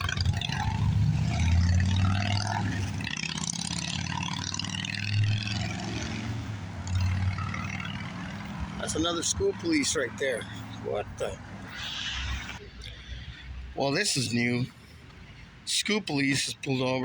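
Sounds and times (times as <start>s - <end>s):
vehicle engines rumbling: 0.0s - 17.0s
traffic hiss: 10.4s - 16.6s.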